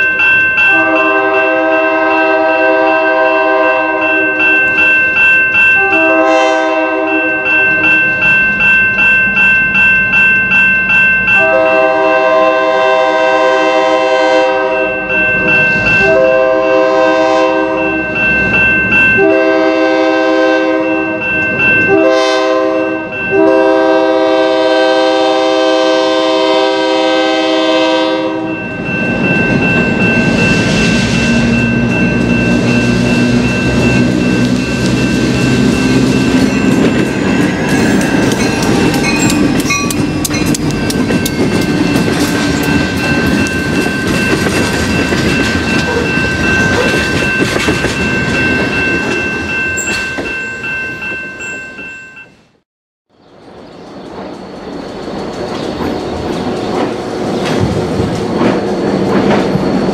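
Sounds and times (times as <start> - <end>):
diesel locomotive engine passing: 0.0 - 51.5, 53.2 - 59.9
crossing bell ringing: 0.0 - 52.6
locomotive horn: 0.6 - 4.4, 5.7 - 7.4, 11.4 - 14.9, 16.0 - 18.0, 19.2 - 21.2, 21.9 - 28.6
train wheels clicking over rail joints: 31.6 - 49.2, 53.6 - 59.9.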